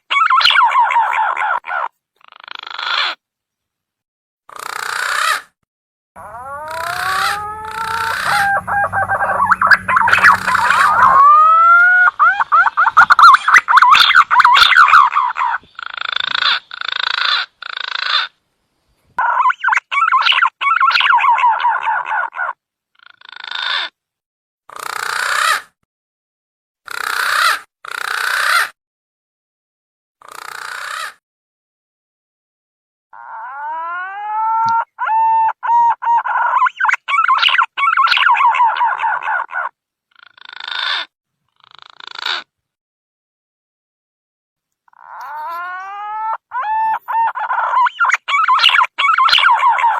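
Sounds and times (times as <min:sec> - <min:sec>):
pigeon rasping calls: 0:00.0 - 0:03.2, 0:04.5 - 0:05.6, 0:06.2 - 0:18.4, 0:19.2 - 0:24.0, 0:24.7 - 0:25.8, 0:26.9 - 0:28.8, 0:30.2 - 0:31.2, 0:33.2 - 0:42.5, 0:44.9 - 0:49.9
warbling trills: 0:06.2 - 0:11.3
whistled bird lure call: 0:06.8 - 0:11.4.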